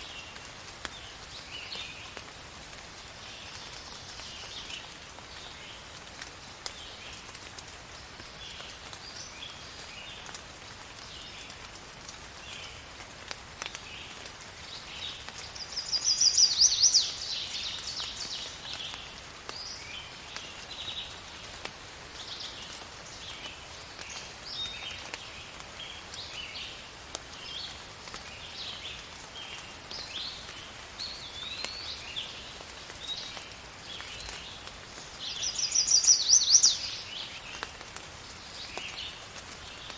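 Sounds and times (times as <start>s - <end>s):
steady rain hiss: 0.0s - 39.9s
birds chirping: 14.6s - 21.2s, 28.4s - 39.9s.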